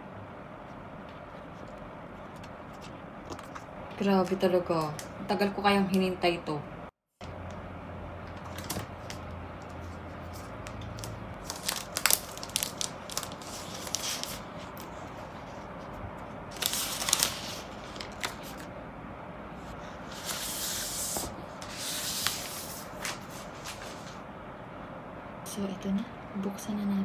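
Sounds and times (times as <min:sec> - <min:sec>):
plastic rustling: 0:10.2 - 0:15.9, 0:16.5 - 0:18.7
plastic wrapping tearing: 0:10.9 - 0:14.5, 0:16.5 - 0:18.7.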